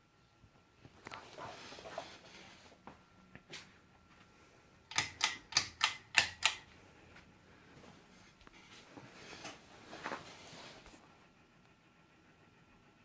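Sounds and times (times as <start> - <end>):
sharp mechanical clicks: 4.9 - 6.7.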